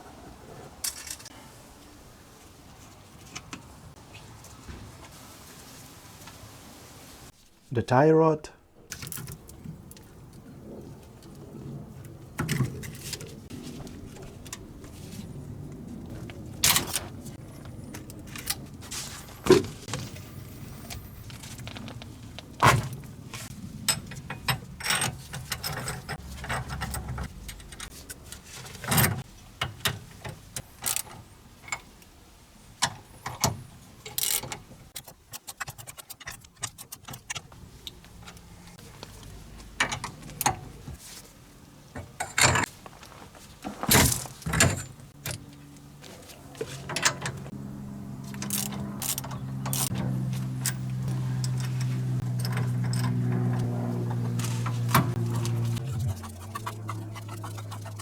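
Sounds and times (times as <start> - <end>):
metallic clinks and rattles: 23.8 - 29.2, 48.4 - 53.6.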